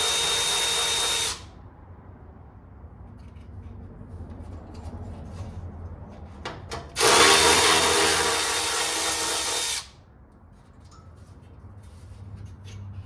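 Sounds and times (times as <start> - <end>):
power ratchet spinning bolt: 7.0 - 9.9.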